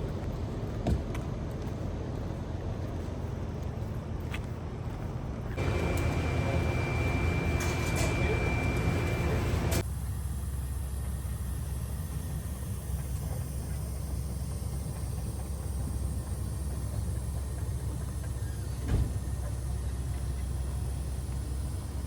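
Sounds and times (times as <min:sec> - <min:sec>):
road noise: 0:00.0 - 0:22.0
vehicle engine rumble: 0:00.0 - 0:22.0
thump: 0:18.9 - 0:19.2.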